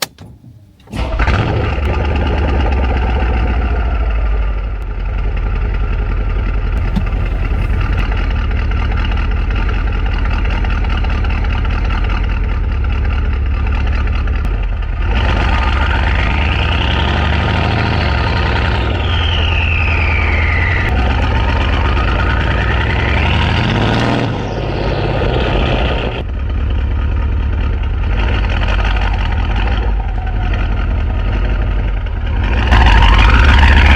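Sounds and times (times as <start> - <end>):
car engine starting and idling: 0.0 - 18.8.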